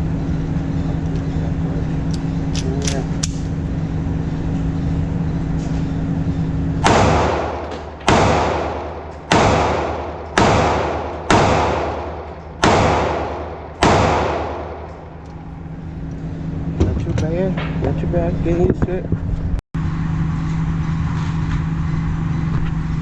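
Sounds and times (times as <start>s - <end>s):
steady low hum: 0.0s - 23.0s
pistol shots echoing: 6.8s - 15.2s.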